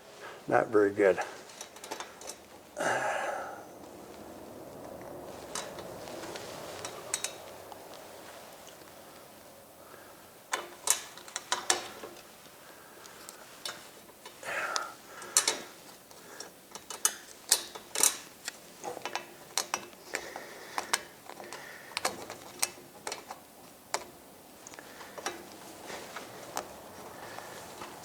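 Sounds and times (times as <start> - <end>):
tools and metal parts clinking: 1.2 - 2.6, 5.4 - 6.1, 6.8 - 7.5, 10.5 - 12.3, 15.2 - 15.7, 16.4 - 20.0.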